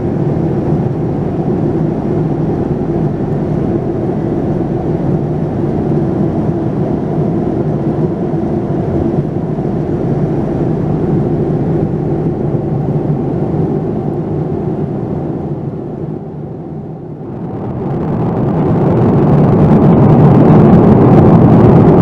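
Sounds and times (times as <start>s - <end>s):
airliner cabin engine noise: 0.0s - 22.0s
air rushing past: 17.2s - 22.0s.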